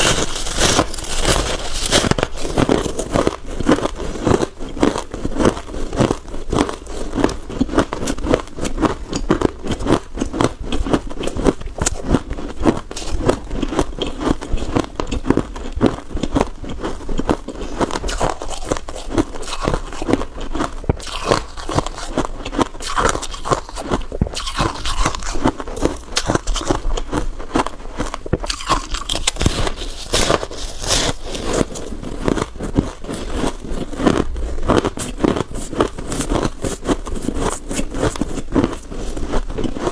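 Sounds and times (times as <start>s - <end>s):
frost crunching while chewed: 0.0s - 39.9s.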